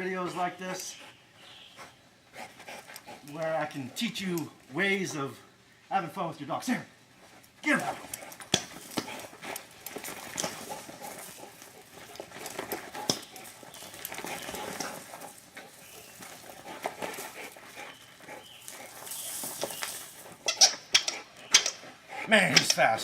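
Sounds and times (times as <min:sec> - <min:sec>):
steady background hiss: 0:00.0 - 0:23.0
light scuffs and clicks: 0:07.2 - 0:20.5
dog sounds: 0:07.7 - 0:23.0.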